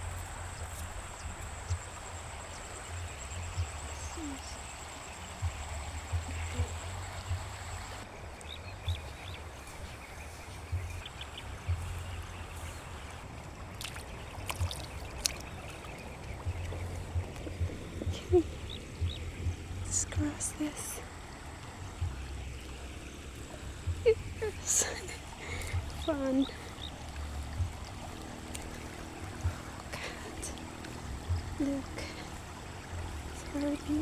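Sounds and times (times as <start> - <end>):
low rumble on microphone: 0.0 - 34.0
faint chirps: 0.1 - 13.2.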